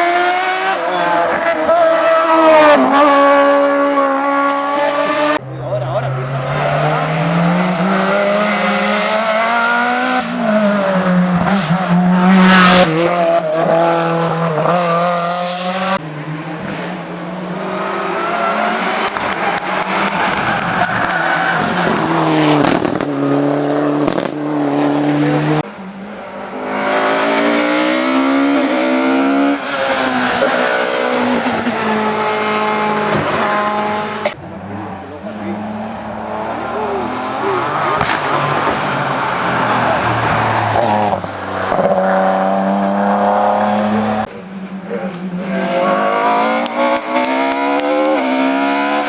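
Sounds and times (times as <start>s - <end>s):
race car engines revving: 0.0s - 49.0s
tyres squealing: 17.7s - 24.1s.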